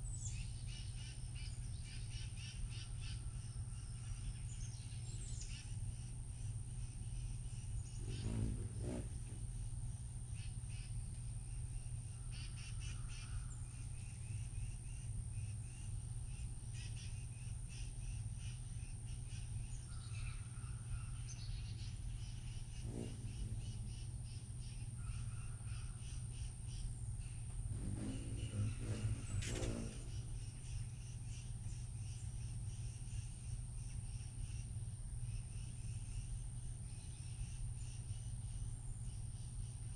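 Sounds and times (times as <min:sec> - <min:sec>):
lower bird call: 0:00.0 - 0:39.9
small birds chirping: 0:00.0 - 0:39.9
low rumble: 0:22.8 - 0:24.8, 0:27.6 - 0:30.5.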